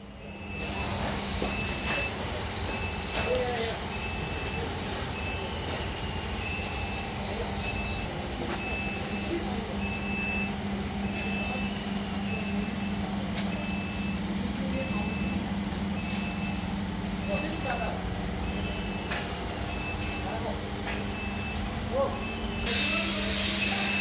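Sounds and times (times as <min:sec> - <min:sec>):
air compressor running: 0:00.0 - 0:24.0
short high electronic beep: 0:22.5 - 0:24.0.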